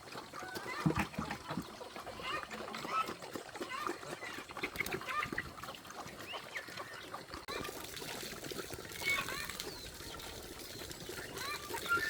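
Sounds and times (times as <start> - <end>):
flock of waterfowl calling: 11.2 - 12.0.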